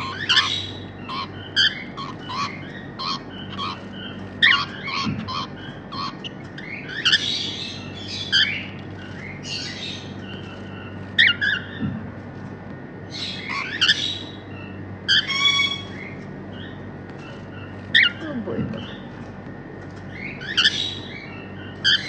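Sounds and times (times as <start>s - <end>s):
cockatiels chirping and whistling: 0.0s - 11.8s, 13.1s - 16.8s, 20.2s - 22.0s
cockatiels squawking: 0.0s - 11.8s, 13.1s - 18.2s, 20.2s - 22.0s.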